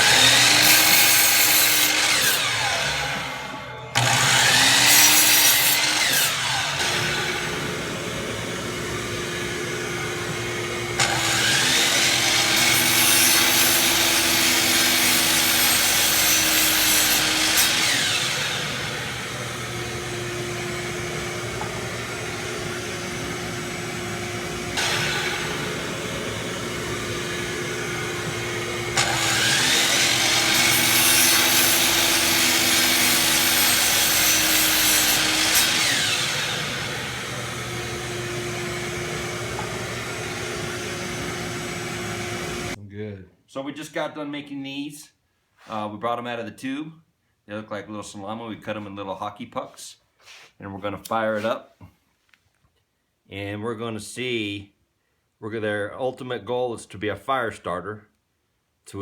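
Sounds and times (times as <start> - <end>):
saw blade rasping through sawdust: 0.0 - 2.5, 28.9 - 36.4
power saw motor hum: 0.0 - 42.8.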